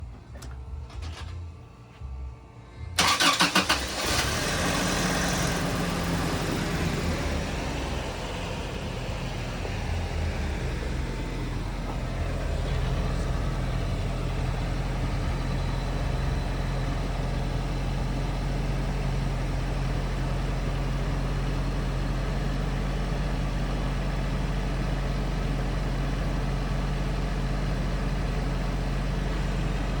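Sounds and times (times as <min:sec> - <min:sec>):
engine idling: 0:00.0 - 0:30.0
engine cranking and starting: 0:02.9 - 0:17.2.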